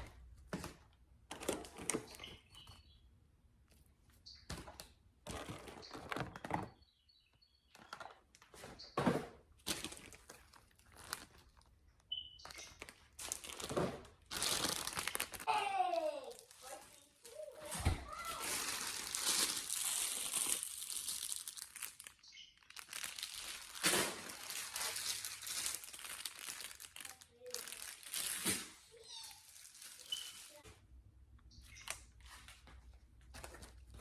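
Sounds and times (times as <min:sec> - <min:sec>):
plastic bags rustling: 0:05.2 - 0:06.7, 0:07.7 - 0:30.6
items being set down: 0:07.8 - 0:09.9.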